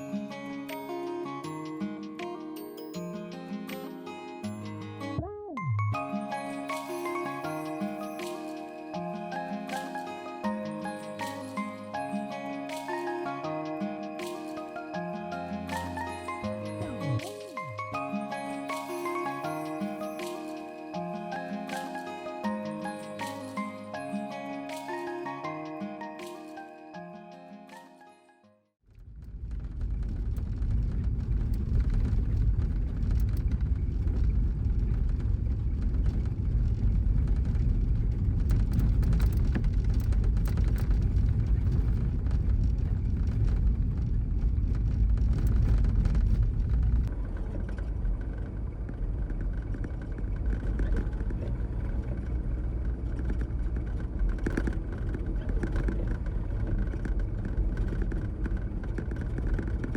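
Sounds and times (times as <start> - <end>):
truck engine and road rumble: 29.0 - 59.9.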